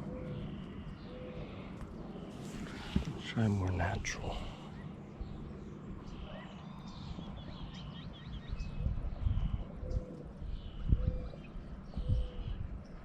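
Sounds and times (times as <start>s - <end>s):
small birds chirping: 0.0s - 13.0s
handling thumps and rustles: 2.4s - 3.2s.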